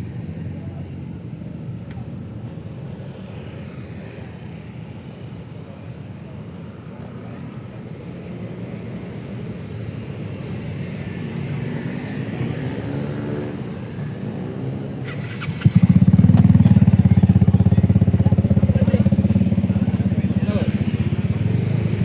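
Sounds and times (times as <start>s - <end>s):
street traffic: 0.0s - 22.0s
motorcycle engine: 12.6s - 22.0s.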